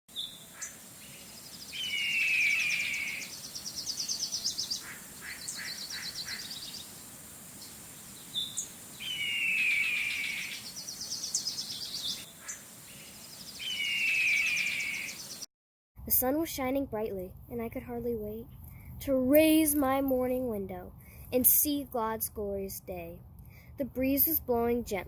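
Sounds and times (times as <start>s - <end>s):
songbird singing: 0.1s - 15.5s.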